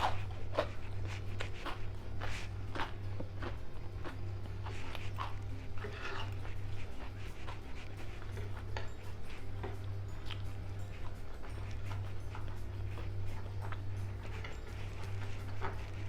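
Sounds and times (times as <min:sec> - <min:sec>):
chewing clicks: 0:00.0 - 0:16.0
mouth smacks: 0:00.0 - 0:16.0
steady low hum: 0:00.0 - 0:16.0.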